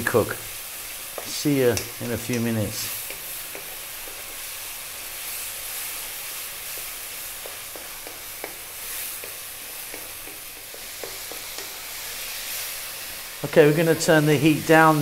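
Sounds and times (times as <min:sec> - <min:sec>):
vegetables sizzling in wok: 0:00.0 - 0:15.0
wooden spatula scraping and tapping: 0:01.1 - 0:04.4, 0:06.6 - 0:12.1.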